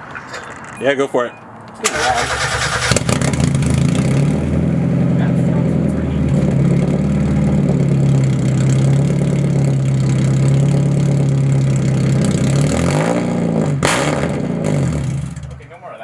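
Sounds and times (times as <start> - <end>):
engine revving: 1.8 - 15.7
car engine idling loudly: 1.9 - 13.0.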